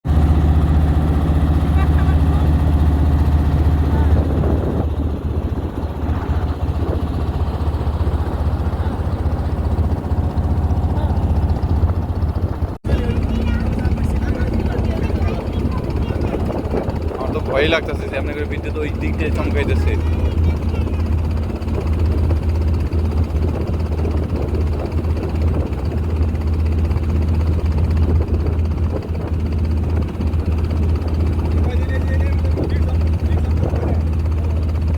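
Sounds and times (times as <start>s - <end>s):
motor engine running: 0.0s - 34.9s.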